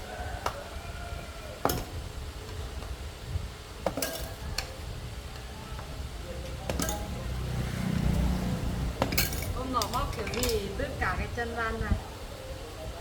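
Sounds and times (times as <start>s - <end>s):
low steady rumble: 0.0s - 12.2s
metal tools clinking: 3.9s - 4.8s, 6.4s - 7.4s, 9.0s - 10.8s.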